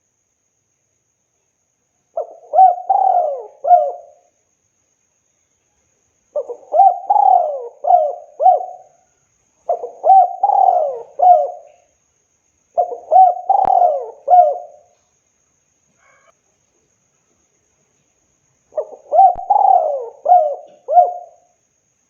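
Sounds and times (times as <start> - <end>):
dove cooing: 2.2 - 4.2, 6.4 - 9.0, 9.7 - 11.9, 12.8 - 14.9, 18.8 - 21.5.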